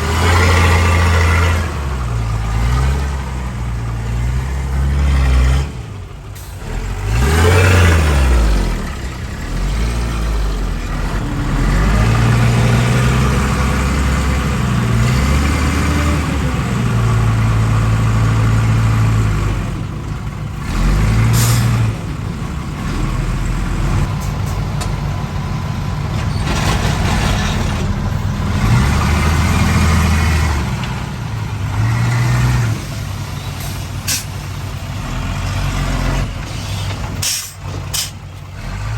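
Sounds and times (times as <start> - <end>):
heavy diesel engines revving: 0.0 - 38.9
short hiss: 36.5 - 38.2.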